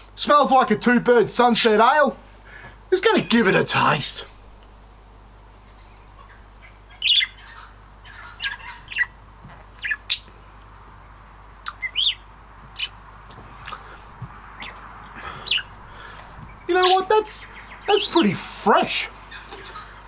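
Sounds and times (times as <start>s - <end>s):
birds chirping and squawking: 2.5s - 4.8s, 5.5s - 9.2s, 9.8s - 10.4s, 11.6s - 20.0s.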